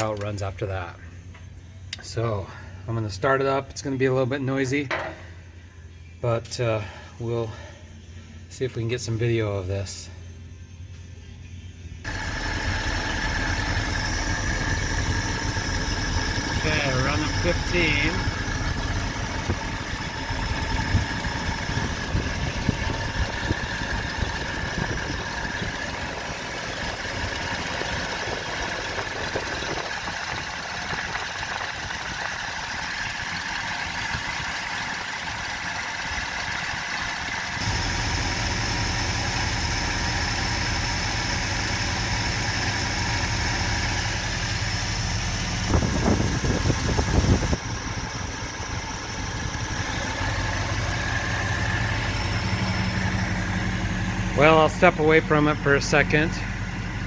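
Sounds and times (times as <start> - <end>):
knocks: 4.9 - 5.2
engine idling: 11.9 - 57.0.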